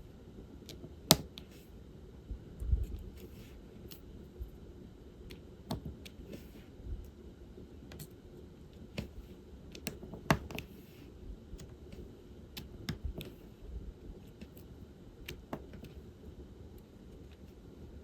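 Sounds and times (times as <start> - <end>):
small clicks and taps: 9.8 - 10.7, 12.6 - 13.4.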